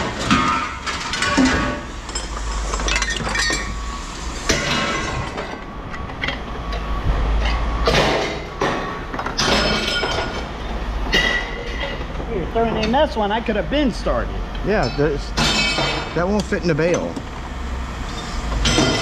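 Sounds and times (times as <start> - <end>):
steady low rumble: 3.7 - 9.2.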